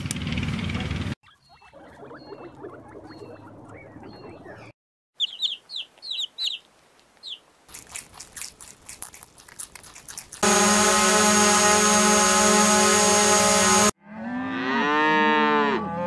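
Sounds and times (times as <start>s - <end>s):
baby chicks peeping: 1.3s - 7.4s
guinea pigs rustling: 5.2s - 10.4s
rabbits crunching greens: 5.9s - 10.4s.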